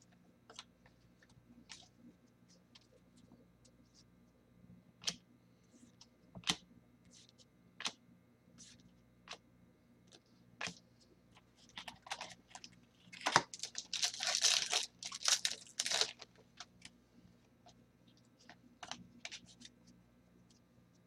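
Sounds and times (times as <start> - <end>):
wrapper tearing and crinkling: 13.1 - 16.2.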